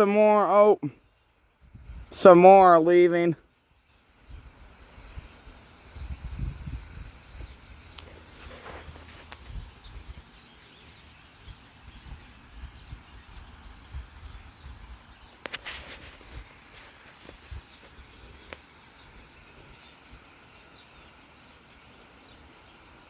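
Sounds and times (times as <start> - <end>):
flock of birds chattering: 0.0 - 0.8, 2.1 - 3.4, 4.2 - 23.0
low rumbles on microphone: 5.8 - 10.2.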